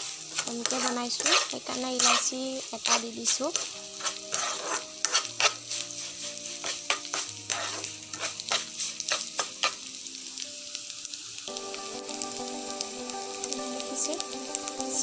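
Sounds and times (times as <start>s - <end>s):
utensil scraping a pan: 0.0s - 9.8s
sugar sizzling in a pan: 0.0s - 15.0s.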